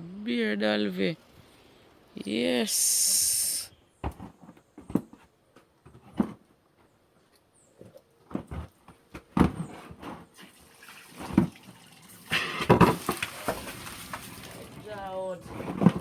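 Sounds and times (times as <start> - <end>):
water splashing: 10.4 - 15.4
running water rushing: 10.6 - 15.2.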